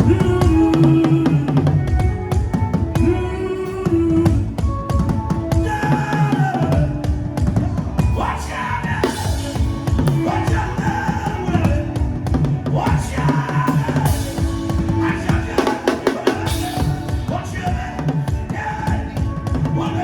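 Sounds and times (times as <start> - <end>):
person singing or chanting: 0.0 - 2.1, 5.5 - 20.0
fast dense drumming: 8.9 - 19.9.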